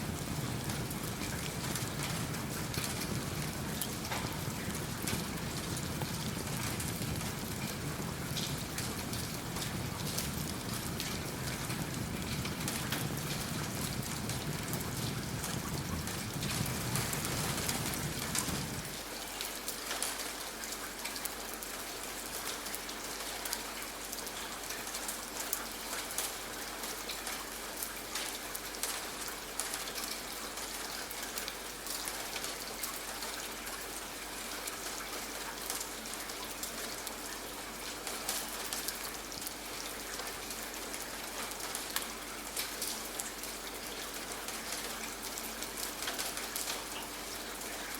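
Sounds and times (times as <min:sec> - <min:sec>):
wood fire crackling: 0:00.0 - 0:20.1
steady rain: 0:00.0 - 0:47.9.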